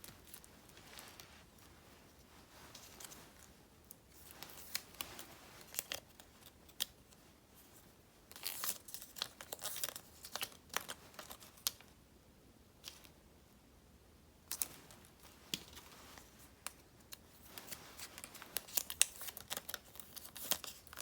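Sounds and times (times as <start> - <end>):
stickers peeling and crinkling: 8.3 - 11.8, 14.5 - 21.0.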